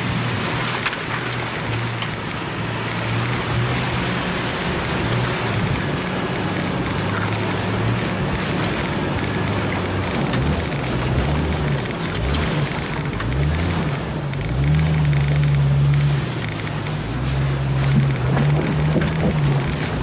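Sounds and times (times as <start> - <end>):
car engine at low revs: 0.0 - 20.0
knocks and rattles: 4.5 - 20.0.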